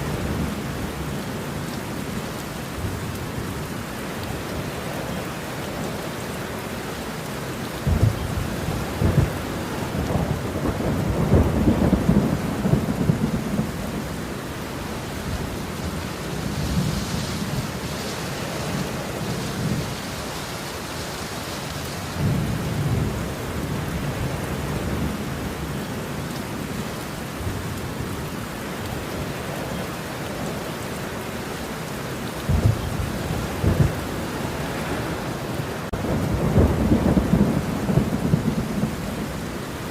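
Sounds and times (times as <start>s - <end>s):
steady rain: 0.0s - 39.9s
thunder rumbling: 7.8s - 20.2s, 32.4s - 39.9s.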